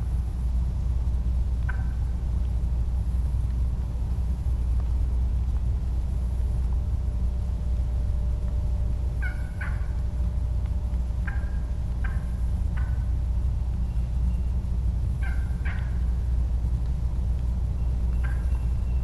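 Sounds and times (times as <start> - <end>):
low rumble on microphone: 0.0 - 19.0
turkey yelps: 9.2 - 9.9, 15.2 - 16.0.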